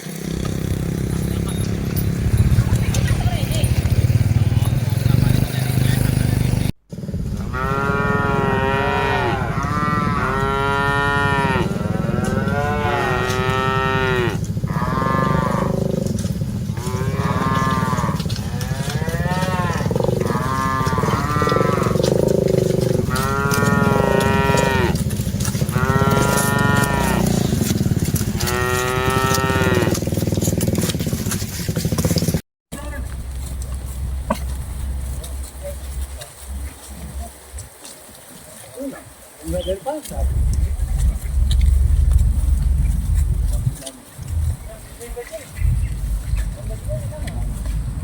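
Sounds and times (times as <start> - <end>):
cattle mooing: 7.3 - 30.6
steady low rumble: 32.8 - 37.4, 40.1 - 48.0.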